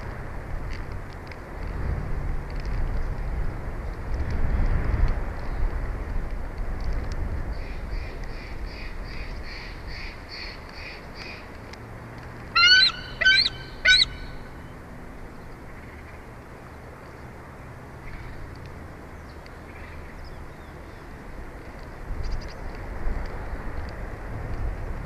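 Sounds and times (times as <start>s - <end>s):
outdoor background noise: 0.0s - 25.0s
eagle squealing calls: 12.5s - 14.4s.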